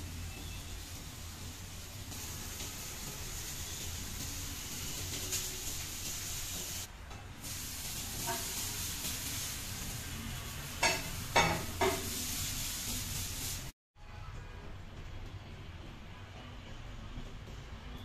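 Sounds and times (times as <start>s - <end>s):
food sizzling in frying pans: 0.0s - 13.8s.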